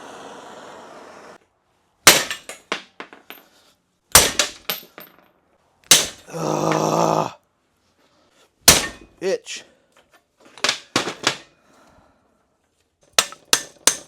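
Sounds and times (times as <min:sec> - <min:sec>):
steady hiss: 0:00.0 - 0:01.4
hammer striking metal: 0:08.7 - 0:09.1.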